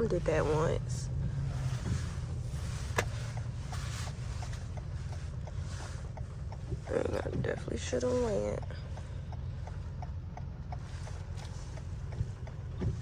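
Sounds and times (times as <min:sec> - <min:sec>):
tyres hissing on wet road: 0:00.0 - 0:06.9, 0:07.9 - 0:09.2
car engine rumble: 0:00.0 - 0:13.0
turn signal ticking: 0:00.0 - 0:13.0.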